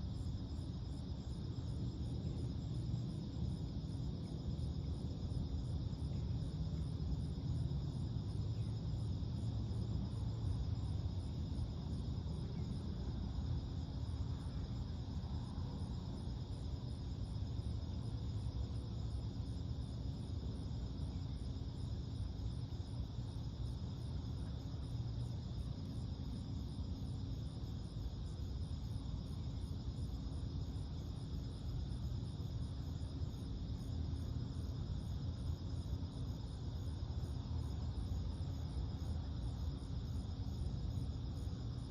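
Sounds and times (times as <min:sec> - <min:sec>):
crickets and insects trilling: 0:00.0 - 0:41.9
fast high pulsing insect call: 0:00.0 - 0:41.9
low steady rumble: 0:00.0 - 0:41.9.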